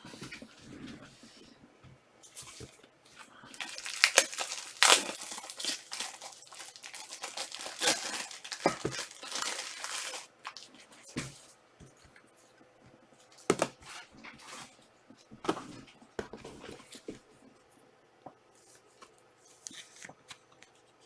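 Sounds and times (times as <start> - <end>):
plastic wrapper tearing and crinkling: 3.5 - 10.8.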